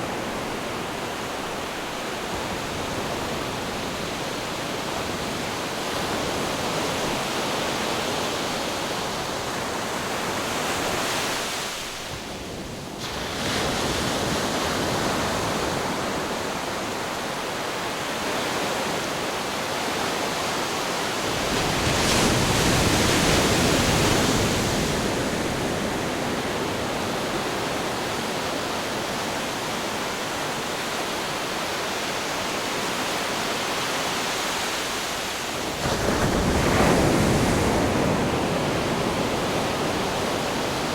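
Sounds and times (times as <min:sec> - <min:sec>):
wind: 0:00.0 - 0:40.9
waves breaking: 0:13.0 - 0:40.9.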